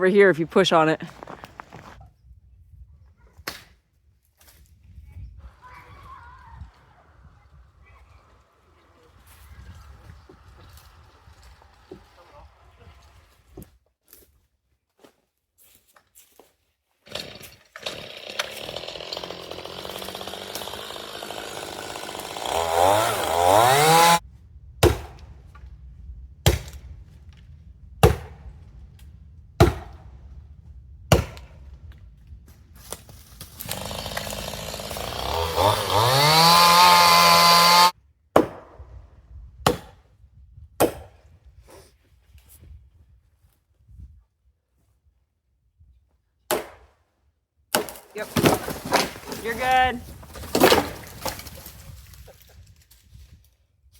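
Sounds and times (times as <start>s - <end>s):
chainsaw revving: 17.1s - 24.2s, 33.5s - 37.9s.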